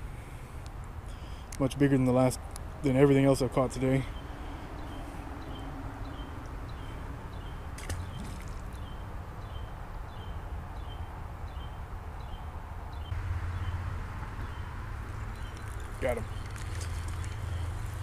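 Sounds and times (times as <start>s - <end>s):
bird chirping: 3.7s - 18.0s.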